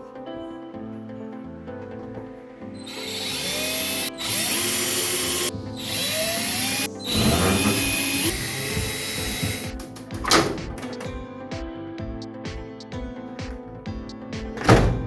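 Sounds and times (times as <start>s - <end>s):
background music: 0.0s - 15.0s
electric drill driving screws: 2.8s - 9.8s.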